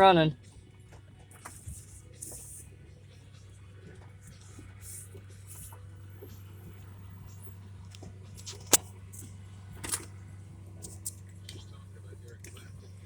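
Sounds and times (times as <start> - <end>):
vehicle engine humming: 0.0 - 13.0
sharp click: 7.9 - 10.1.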